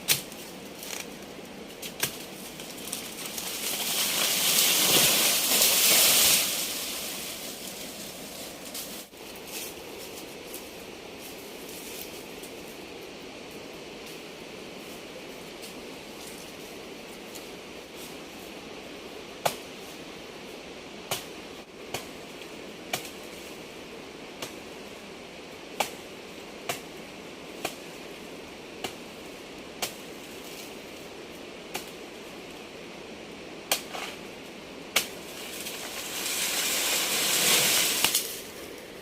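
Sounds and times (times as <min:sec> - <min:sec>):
steady hiss: 0:00.0 - 0:39.0.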